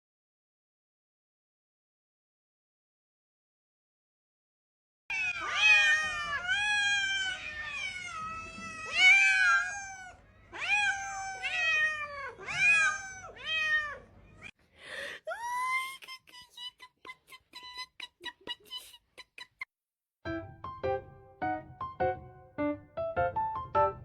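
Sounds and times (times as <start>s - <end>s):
cat meowing: 5.1s - 14.5s.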